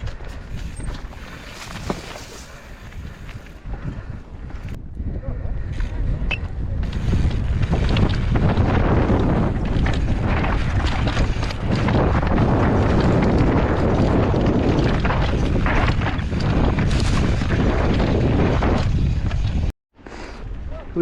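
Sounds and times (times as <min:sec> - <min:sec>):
wind buffeting microphone: 0:00.0 - 0:19.7
bike knocks and rattles: 0:06.4 - 0:19.7.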